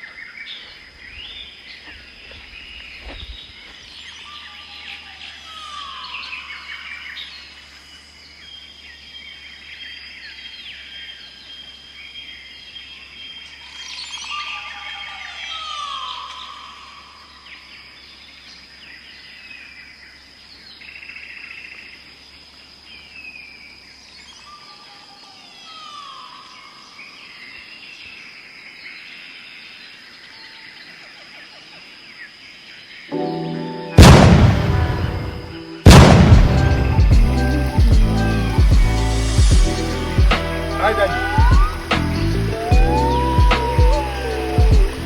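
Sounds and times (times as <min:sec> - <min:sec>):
bird song with falling notes: 0:02.7 - 0:07.5, 0:13.2 - 0:17.8, 0:33.1 - 0:45.0
birds chirping and whistling: 0:02.7 - 0:07.5, 0:33.8 - 0:45.0
steady high-pitched tone: 0:33.1 - 0:45.0.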